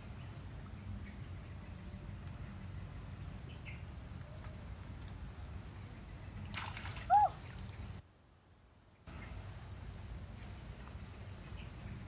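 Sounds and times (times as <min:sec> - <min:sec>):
bird chirp: 0:00.0 - 0:07.9
low outdoor background: 0:00.0 - 0:12.0.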